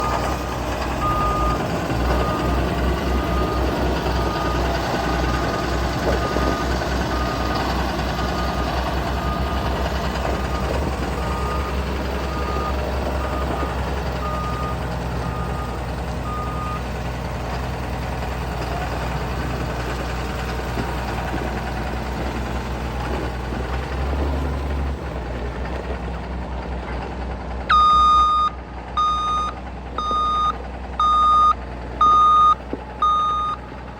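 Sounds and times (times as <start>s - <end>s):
tractor diesel engine throbbing: 0.0s - 33.9s
faint even beeps: 27.7s - 33.6s
loud beep in long pulses: 27.7s - 33.6s.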